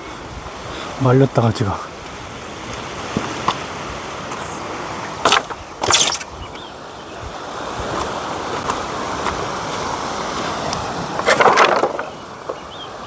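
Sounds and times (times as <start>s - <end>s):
waves washing on shore: 0.0s - 13.0s
short scraping noises: 5.3s - 6.3s.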